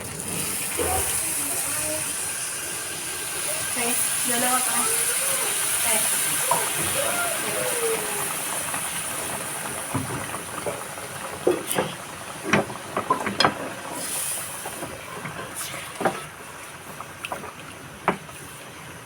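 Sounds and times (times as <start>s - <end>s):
hot oil sizzling: 0.0s - 19.0s
oil popping and crackling: 0.0s - 19.0s.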